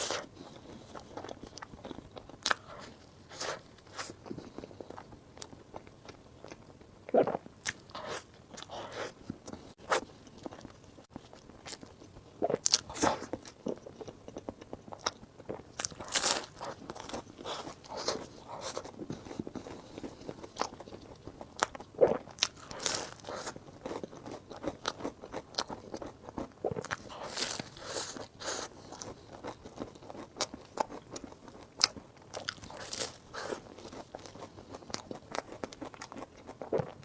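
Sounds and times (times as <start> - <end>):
person biting and chewing: 15.8 - 19.4, 26.7 - 37.0.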